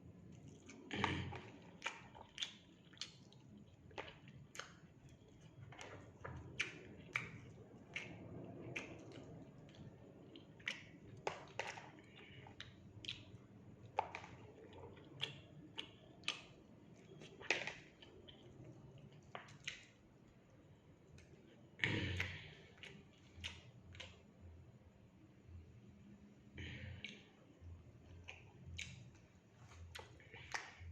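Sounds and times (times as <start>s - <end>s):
person eating: 0.3s - 20.0s.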